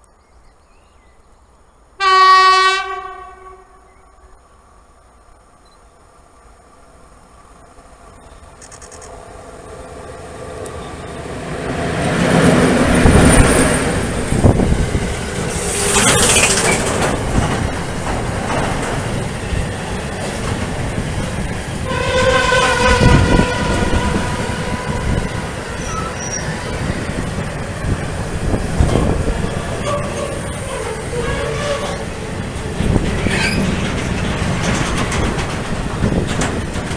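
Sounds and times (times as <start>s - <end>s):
freight train passing: 1.8s - 36.9s
stacked tone horn: 21.8s - 26.8s
wheels knocking over rail joints: 32.8s - 36.9s.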